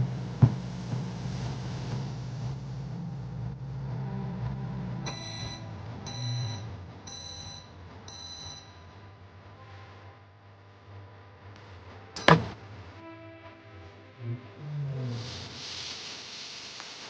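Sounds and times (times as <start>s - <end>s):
low hum: 0.0s - 13.0s
microwave oven beeping: 5.0s - 8.9s.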